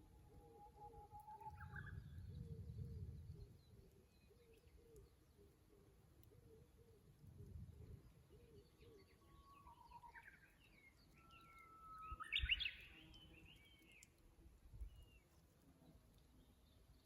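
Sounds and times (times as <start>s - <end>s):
small birds chirping faintly: 0.0s - 17.0s
bush warbler singing: 8.5s - 14.1s.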